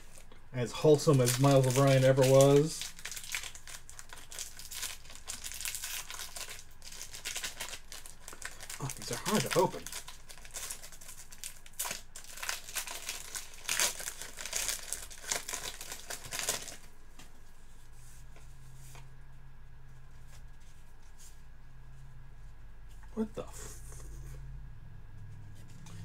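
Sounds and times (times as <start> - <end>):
plastic wrapper crinkling and tearing: 0.0 - 16.9.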